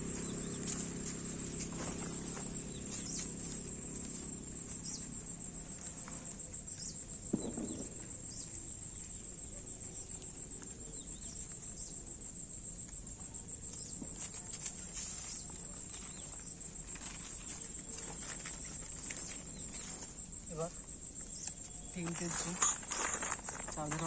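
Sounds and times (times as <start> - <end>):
insects chirring: 0.0 - 24.0
light clicks and rustles: 21.0 - 24.0.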